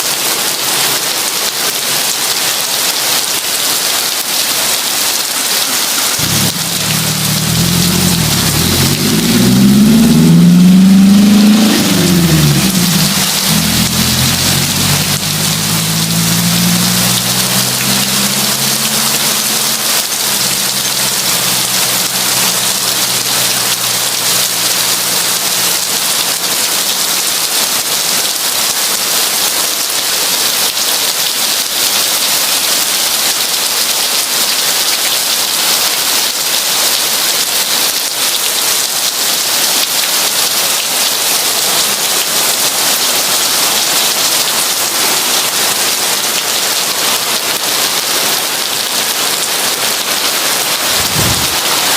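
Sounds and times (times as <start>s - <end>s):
heavy rain falling: 0.0s - 51.9s
low hum: 6.2s - 23.1s, 51.0s - 51.9s.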